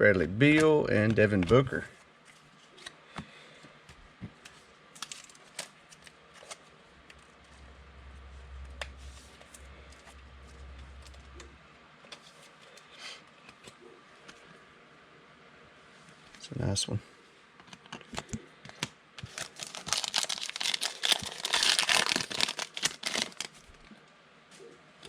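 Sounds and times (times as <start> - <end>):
cards clicking and rustling: 4.3 - 7.3, 17.6 - 23.6
low hum: 6.8 - 12.7.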